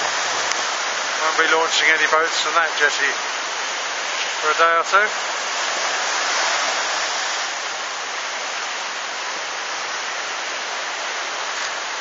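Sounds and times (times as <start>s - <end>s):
coastal storm rushing: 0.0s - 12.0s.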